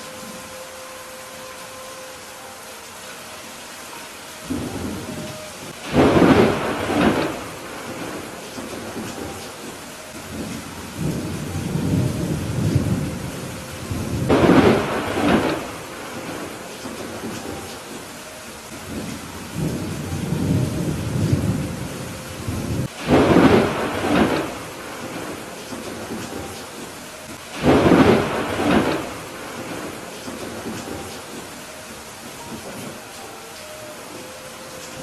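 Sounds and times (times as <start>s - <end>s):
steady rain: 0.0s - 35.0s
thunder rumbling and cracking: 4.5s - 17.6s, 18.9s - 31.5s.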